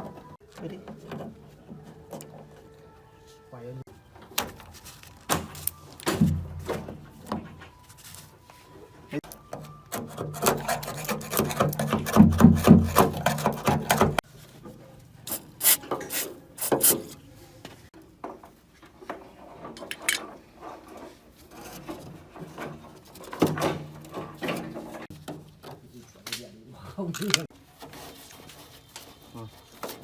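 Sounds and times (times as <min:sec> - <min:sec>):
scrapes and knocks on metal: 0:09.5 - 0:14.9, 0:18.2 - 0:25.9
rapid rubbing and scraping: 0:10.2 - 0:14.2.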